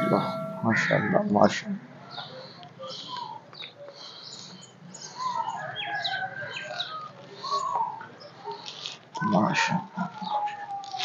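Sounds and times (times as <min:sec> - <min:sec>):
birds chirping and calling: 0:00.0 - 0:09.5.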